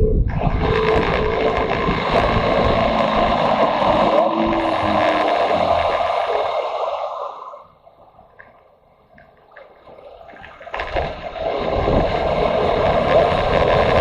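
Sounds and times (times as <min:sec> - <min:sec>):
motorcycle engine: 0:00.4 - 0:06.1.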